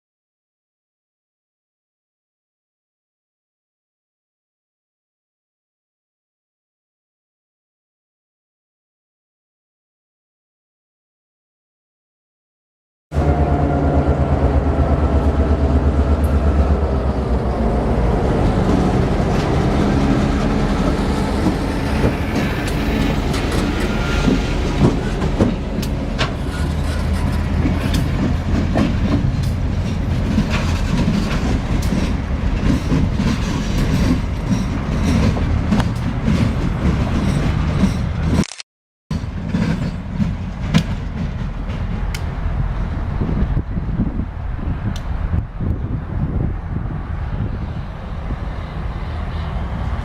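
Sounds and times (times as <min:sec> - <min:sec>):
locomotive engine droning: 0:13.1 - 0:38.4, 0:39.2 - 0:50.0
train wheels clicking on rail joints: 0:15.2 - 0:38.4, 0:39.2 - 0:43.1.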